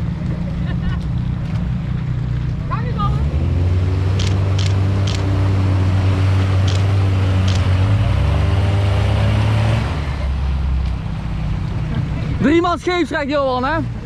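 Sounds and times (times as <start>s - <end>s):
off-road vehicle engine: 0.0s - 14.0s
vehicle driving through muddy water: 0.0s - 14.0s
short sharp clicks: 4.2s - 5.3s, 6.6s - 7.8s.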